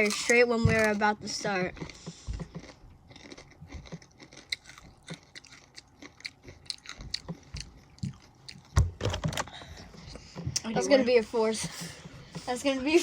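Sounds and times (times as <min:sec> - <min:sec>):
crunching and chewing chips: 0:00.0 - 0:09.4.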